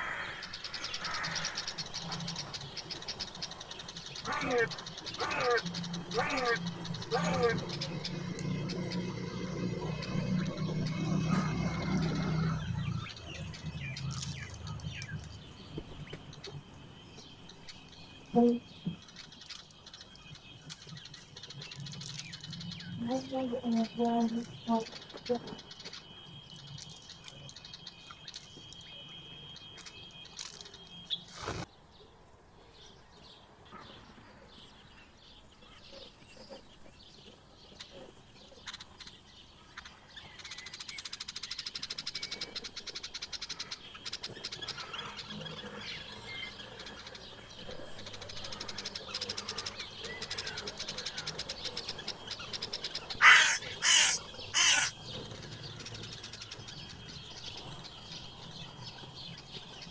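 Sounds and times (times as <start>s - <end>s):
harsh crow-like caws: 0.0s - 2.3s, 4.2s - 9.5s, 53.2s - 55.0s
wild birds chirping and singing: 0.0s - 59.9s.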